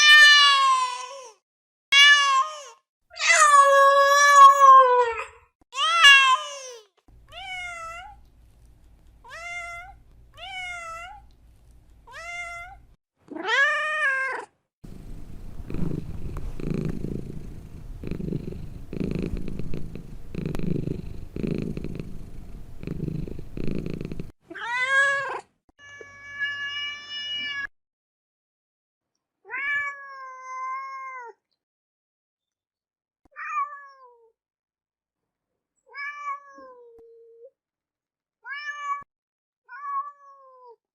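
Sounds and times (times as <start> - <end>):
cat purring: 14.8 - 24.3.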